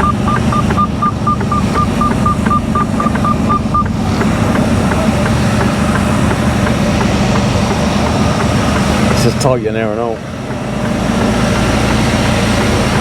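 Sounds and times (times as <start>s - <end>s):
rapid electronic beeping: 0.0s - 9.3s
diesel engine running: 0.0s - 13.0s.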